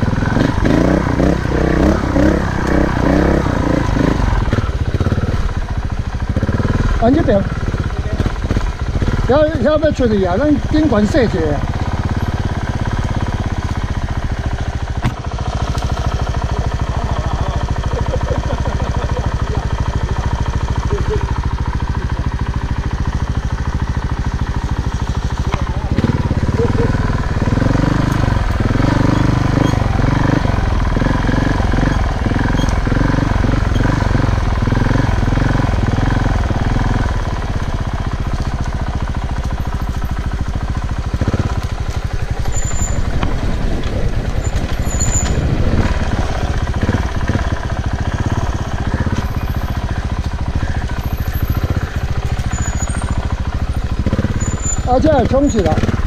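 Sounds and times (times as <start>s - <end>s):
off-road motorcycle engine: 0.0s - 56.0s.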